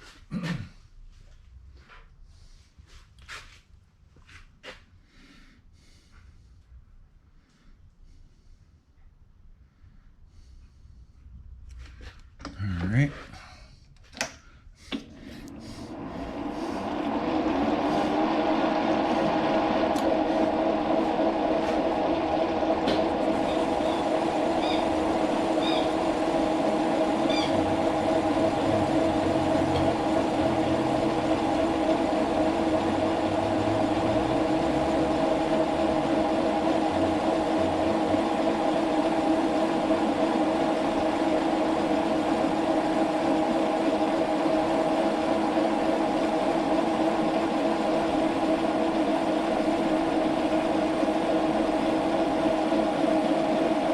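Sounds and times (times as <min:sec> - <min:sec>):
shop machine humming: 0:12.4 - 0:53.9.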